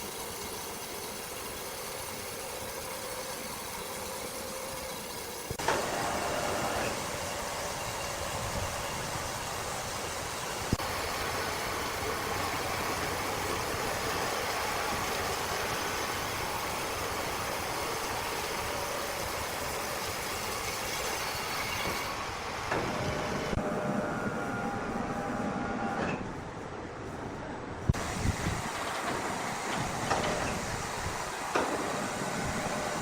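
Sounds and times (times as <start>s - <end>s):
heavy machinery running: 1.9s - 26.6s.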